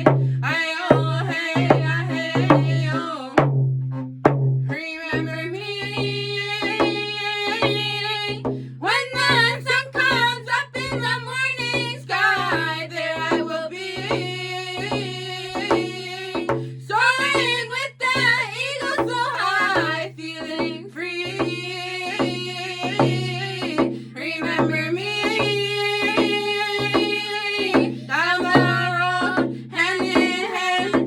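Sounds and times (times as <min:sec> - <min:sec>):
steady drumbeat: 0:00.0 - 0:31.0
person singing: 0:21.2 - 0:31.0.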